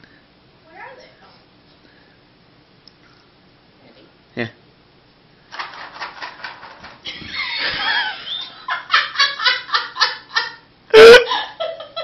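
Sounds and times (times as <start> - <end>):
person laughing: 7.1 - 12.0.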